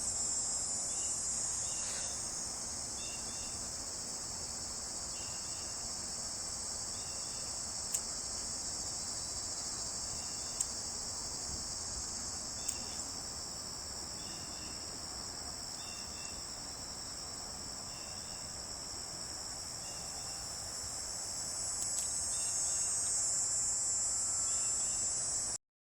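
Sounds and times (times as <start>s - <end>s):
insects droning: 0.0s - 25.6s
sharp clicks: 21.8s - 22.2s.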